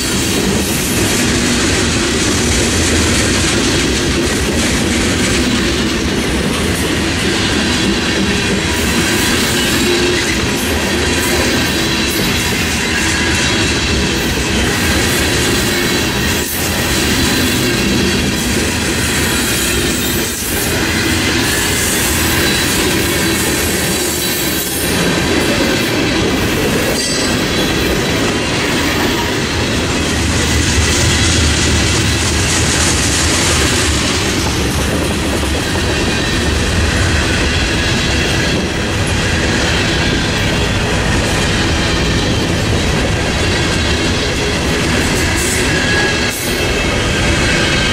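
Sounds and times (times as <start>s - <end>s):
freight cars rumbling on rail: 0.0s - 47.9s.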